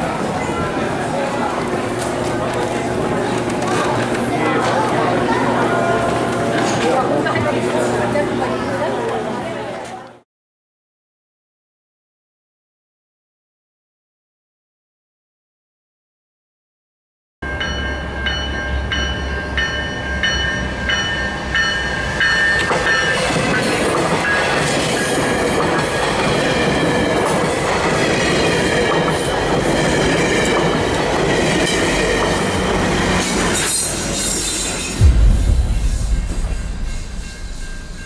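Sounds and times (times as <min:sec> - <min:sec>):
passing train rolling: 0:00.0 - 0:09.5, 0:17.4 - 0:38.0
loud low rumble: 0:35.0 - 0:38.0.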